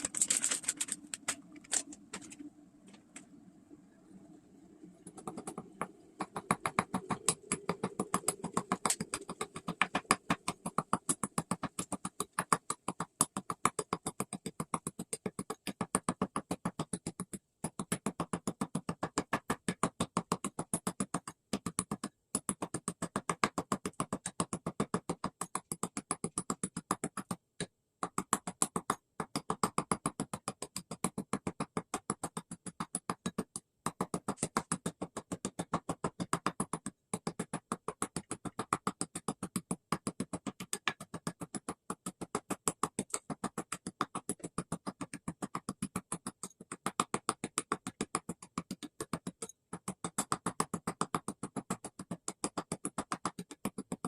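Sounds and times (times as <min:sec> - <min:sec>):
rapid regular tapping: 0:05.1 - 0:20.2.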